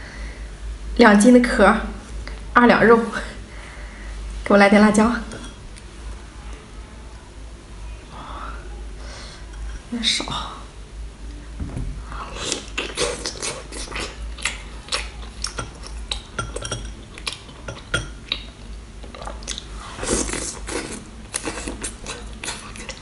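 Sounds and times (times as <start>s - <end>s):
woman chewing: 12.3s - 23.0s
metal spoon clinking on glass bowl: 16.4s - 17.0s.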